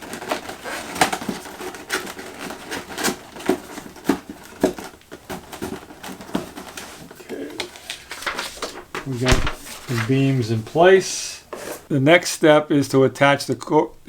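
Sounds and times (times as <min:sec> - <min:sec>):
cardboard cracking and creaking: 0:00.0 - 0:10.5.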